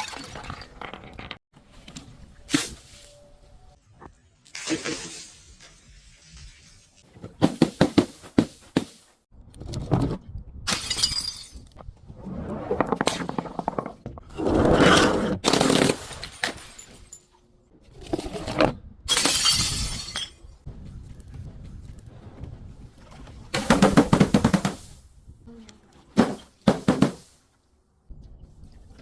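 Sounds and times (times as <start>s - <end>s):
glass breaking and crunching: 10.7s - 11.7s, 15.4s - 17.4s.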